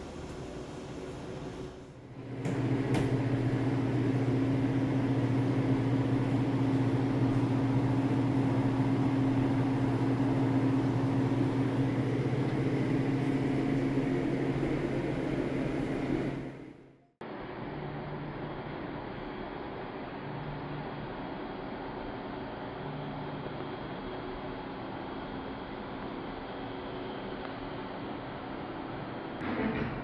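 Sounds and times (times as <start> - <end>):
pump motor hum: 2.0 - 16.8.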